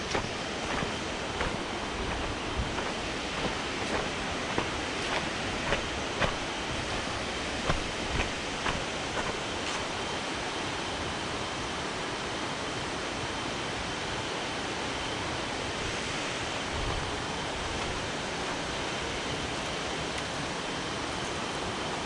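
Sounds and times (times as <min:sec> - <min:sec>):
waterfall roaring: 0:16.2 - 0:22.0.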